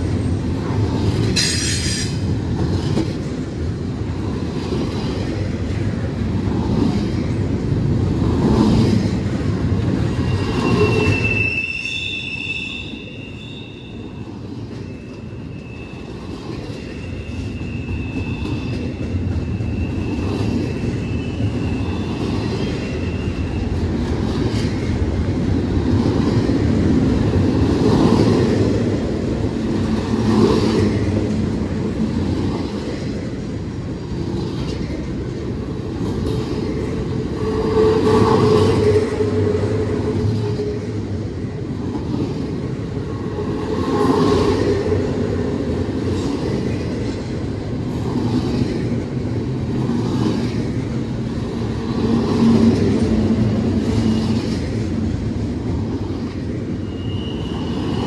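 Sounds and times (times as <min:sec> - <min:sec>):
train wheels on rails: 0:00.0 - 0:58.0
wheel squeal: 0:10.0 - 0:14.2, 0:14.8 - 0:23.8, 0:56.8 - 0:58.0.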